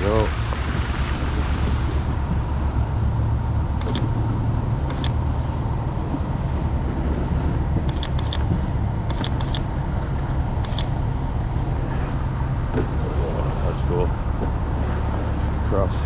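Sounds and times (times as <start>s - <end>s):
steady low rumble: 0.0s - 16.0s
camera shutter clicking: 3.8s - 4.1s, 4.9s - 5.2s, 7.9s - 8.4s, 9.1s - 9.7s, 10.6s - 10.9s.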